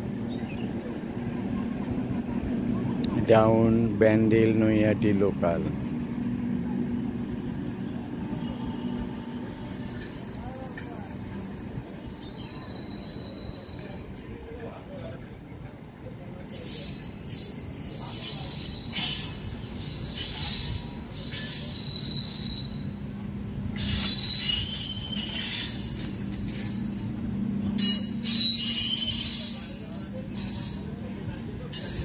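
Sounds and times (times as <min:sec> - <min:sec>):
train coaches rumbling: 0:00.0 - 0:32.0
high-pitched wheel squeals: 0:08.3 - 0:14.2, 0:16.4 - 0:32.0.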